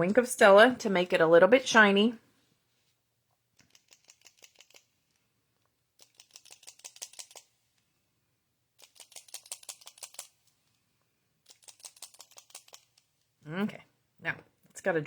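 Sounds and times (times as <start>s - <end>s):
pen clicking: 3.6s - 5.2s, 6.0s - 7.5s, 8.8s - 10.4s, 11.4s - 13.1s.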